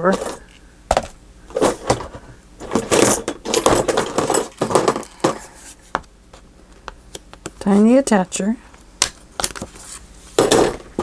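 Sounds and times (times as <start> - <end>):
small objects clattering in drawer: 1.5 - 5.5.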